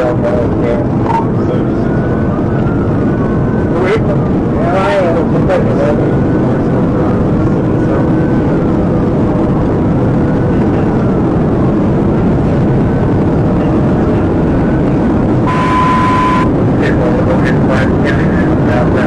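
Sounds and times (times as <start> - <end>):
car engine and road noise: 0.0 - 19.0
police siren wailing: 1.0 - 6.5, 15.4 - 16.6.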